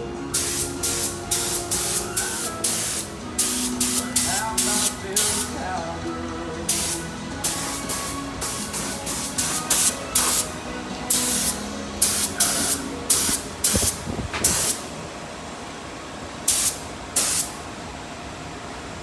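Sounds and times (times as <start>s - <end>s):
spray paint hissing bursts: 0.3s - 5.6s, 6.7s - 14.9s, 16.5s - 17.6s.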